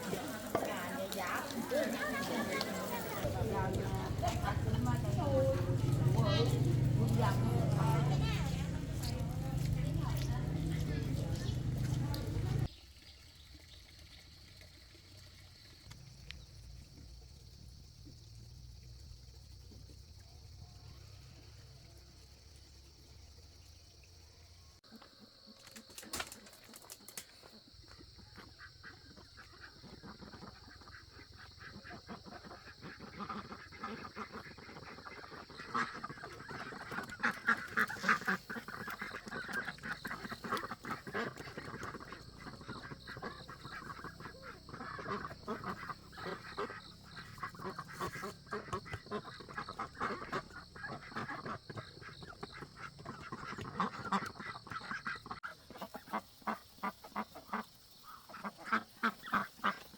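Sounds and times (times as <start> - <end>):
ducks quacking: 0.0 - 12.7, 28.3 - 59.9.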